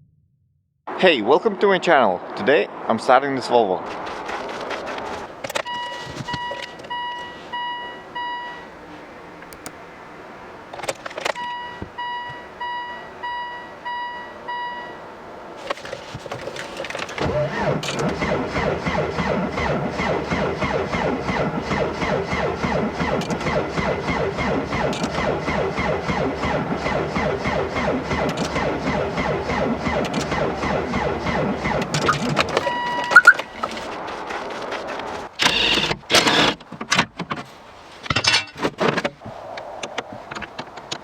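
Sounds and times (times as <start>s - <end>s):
electronic warning beeps: 5.6s - 8.7s, 11.4s - 15.0s, 17.3s - 33.5s
diesel engine starting and clattering: 15.6s - 37.5s.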